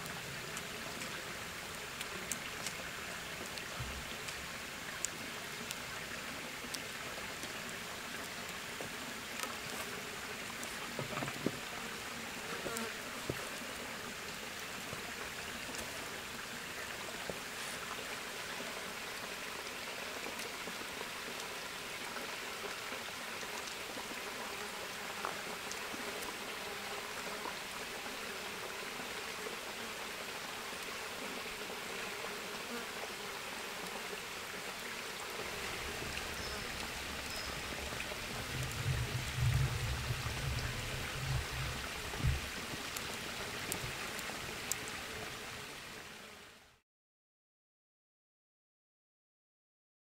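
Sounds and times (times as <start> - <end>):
steady forest hiss: 0.0 - 46.8
faint ticks: 25.2 - 26.4, 35.8 - 44.9
low rumbling: 37.0 - 42.6.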